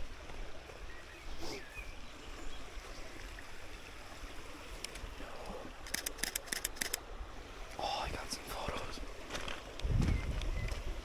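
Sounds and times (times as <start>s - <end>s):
bird chirp: 0.8s - 3.1s.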